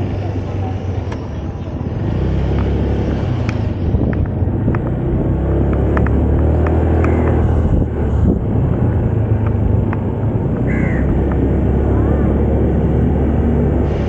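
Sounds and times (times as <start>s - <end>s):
scooter engine and road rumble: 0.0s - 14.0s.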